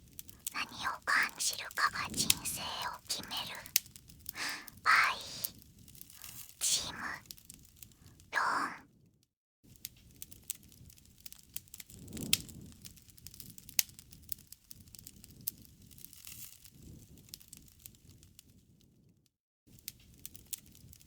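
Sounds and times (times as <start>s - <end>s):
wood fire crackling and popping: 10.1s - 18.0s.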